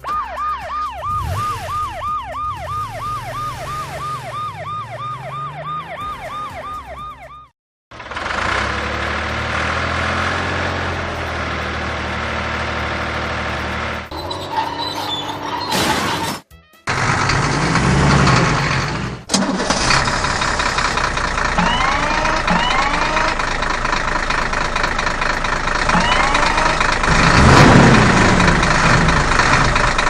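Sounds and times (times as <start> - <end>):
cartoon siren wailing: 0.0 - 7.5, 21.6 - 23.4, 25.9 - 27.0
noisy rumble: 16.9 - 30.0.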